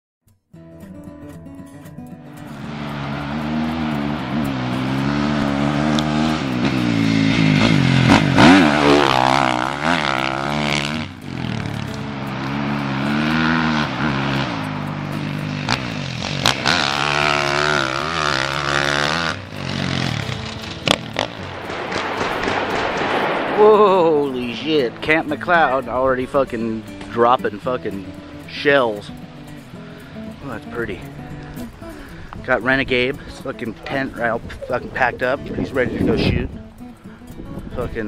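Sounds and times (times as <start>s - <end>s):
sharp cracks: 2.4s - 25.7s
dirt bike engine revving: 2.6s - 26.0s.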